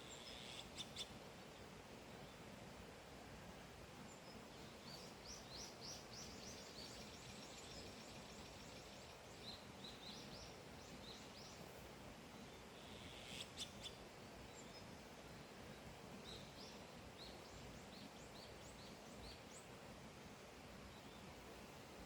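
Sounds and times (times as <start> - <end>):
faint bird song: 0.0 - 22.0.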